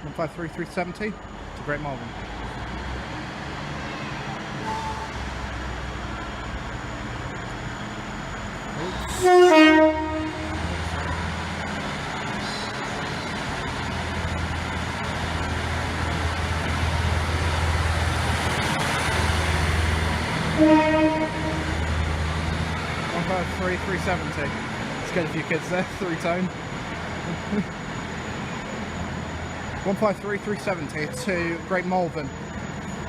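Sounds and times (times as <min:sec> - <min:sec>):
diesel engine rumbling: 0:00.0 - 0:33.0
train horn: 0:09.0 - 0:10.7, 0:20.6 - 0:21.8.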